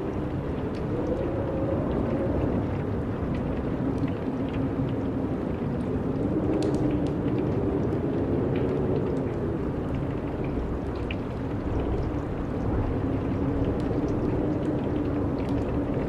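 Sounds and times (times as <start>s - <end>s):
small ticks: 6.6s - 7.4s.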